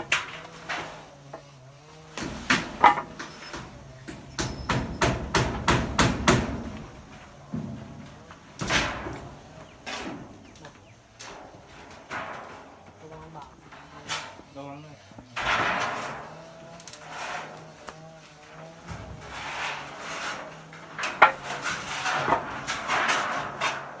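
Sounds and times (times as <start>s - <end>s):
hammer blows: 2.1s - 10.4s.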